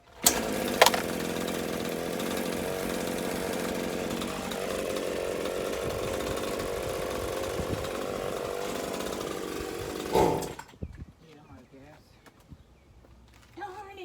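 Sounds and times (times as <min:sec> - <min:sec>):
chainsaw engine running: 0:00.0 - 0:10.8.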